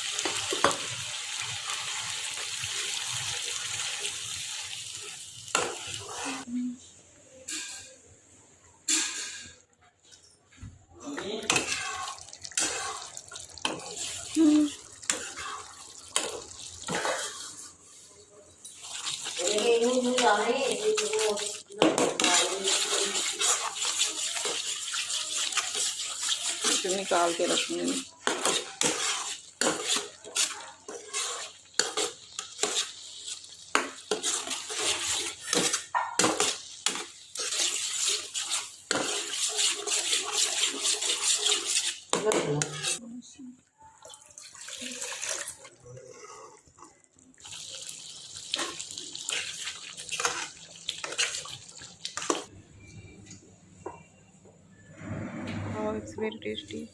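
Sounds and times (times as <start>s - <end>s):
spoon scraping a cooking pot: 7.4s - 8.0s, 11.2s - 43.0s, 48.5s - 51.6s.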